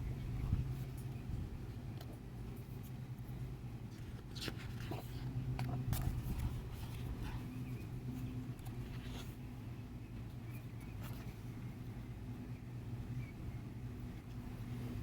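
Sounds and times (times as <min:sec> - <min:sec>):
steady low hum: 0:00.0 - 0:15.0
book pages rustling: 0:03.9 - 0:07.4, 0:08.5 - 0:09.4.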